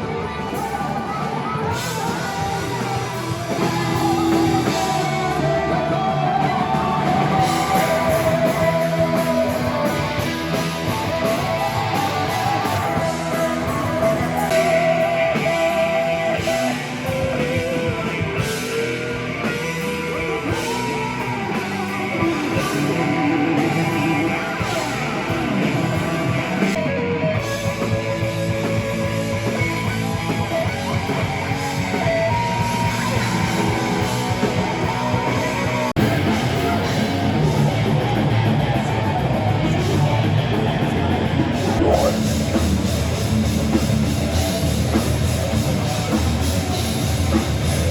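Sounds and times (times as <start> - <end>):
rock music with electric guitar: 0.0 - 47.9.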